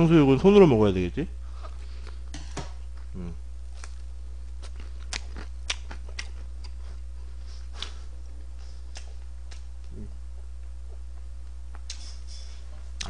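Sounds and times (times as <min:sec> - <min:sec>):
steady low hum: 0:00.0 - 0:13.0
crunchy chewing: 0:03.7 - 0:13.0.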